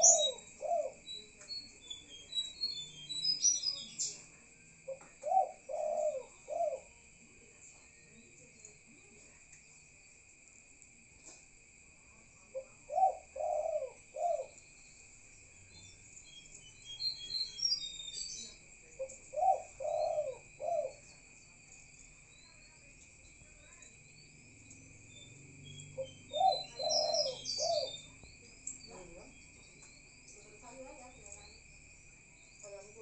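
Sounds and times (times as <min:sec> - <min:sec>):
dove cooing: 0:00.0 - 0:01.3, 0:04.8 - 0:07.0, 0:12.4 - 0:14.6, 0:18.4 - 0:21.3, 0:26.0 - 0:29.4
crickets trilling: 0:00.0 - 0:33.0.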